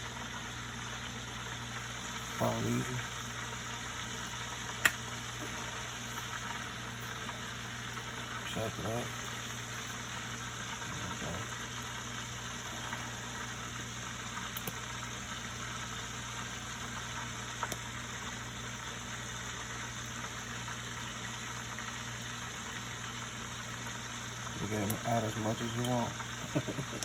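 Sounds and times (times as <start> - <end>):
mechanical hum: 0.0 - 27.0
small clicks: 14.5 - 14.8.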